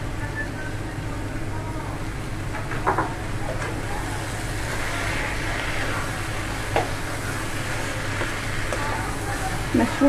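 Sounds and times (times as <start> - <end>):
mushrooms sizzling in a pan: 3.9 - 10.0.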